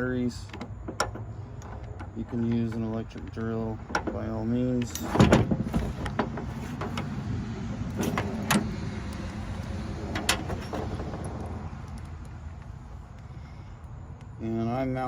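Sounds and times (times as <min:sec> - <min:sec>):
loud tool clunk: 0:03.8 - 0:07.1, 0:07.9 - 0:08.8, 0:10.1 - 0:11.2.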